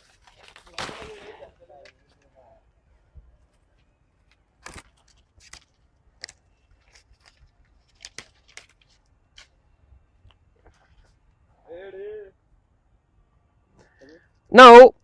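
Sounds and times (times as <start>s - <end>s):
tree branch cracking and snapping: 0.0s - 2.0s, 4.3s - 9.5s.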